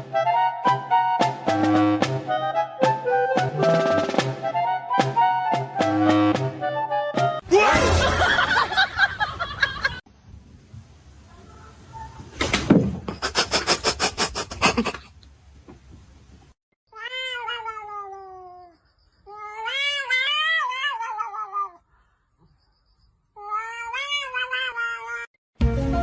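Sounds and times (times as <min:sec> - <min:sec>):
cat meowing: 0:16.9 - 0:21.8, 0:23.4 - 0:25.3.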